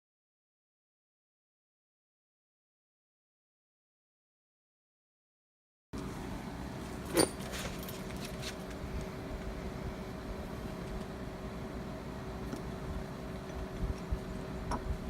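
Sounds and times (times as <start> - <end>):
steady room hum: 6.0 - 15.0.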